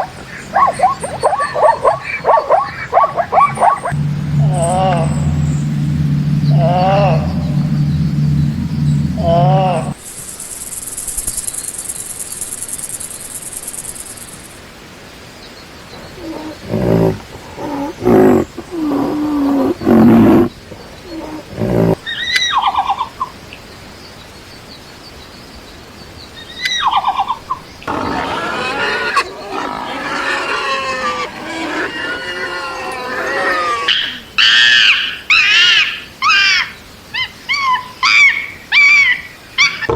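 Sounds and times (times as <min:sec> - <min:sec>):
deep animal calls: 0:03.9 - 0:14.6, 0:16.1 - 0:22.0, 0:27.8 - 0:34.6
high buzz: 0:03.9 - 0:14.6.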